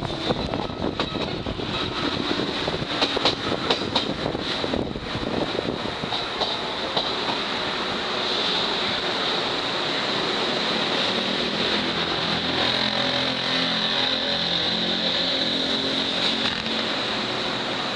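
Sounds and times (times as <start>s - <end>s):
train running noise inside carriage: 0.0s - 17.9s.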